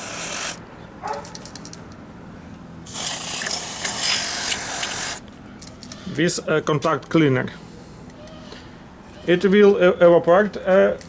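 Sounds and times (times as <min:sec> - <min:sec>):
aerosol can spraying: 0:00.0 - 0:00.6, 0:02.9 - 0:05.2.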